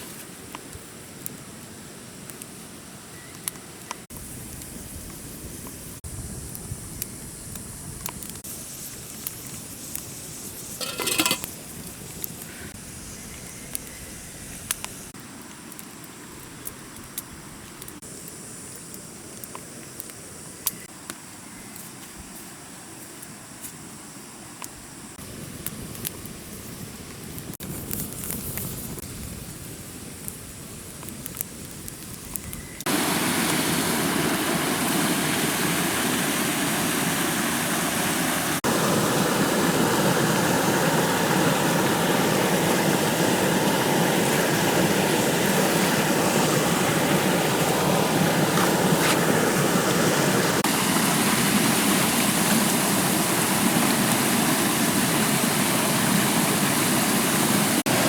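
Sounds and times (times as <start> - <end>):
rushing water: 32.9 - 58.0.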